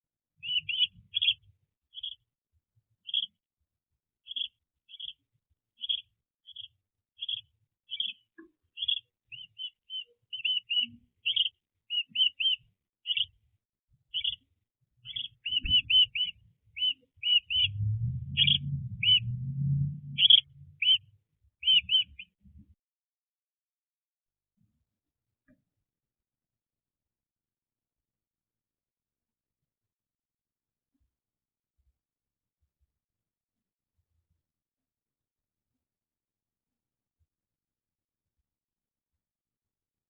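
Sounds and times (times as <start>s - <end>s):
small bird chirping: 0.4s - 2.2s, 3.0s - 3.4s, 4.2s - 13.4s, 14.1s - 14.4s, 15.0s - 22.4s
low rumble: 17.5s - 21.0s.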